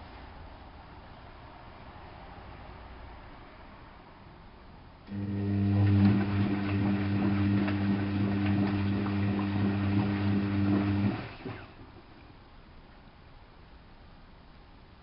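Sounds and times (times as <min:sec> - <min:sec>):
washing machine humming: 0:05.1 - 0:12.5.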